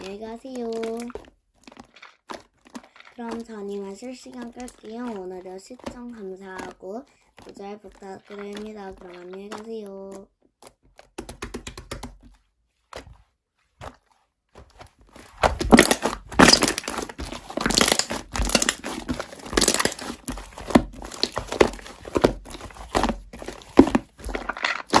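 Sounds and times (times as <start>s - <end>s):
slime squished by hand: 15.1s - 25.0s.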